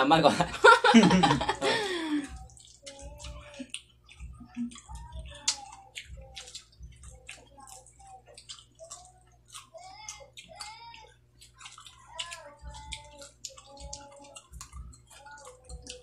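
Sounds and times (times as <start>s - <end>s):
person laughing: 0.3s - 2.4s
people chewing and lip smacking: 0.6s - 16.0s.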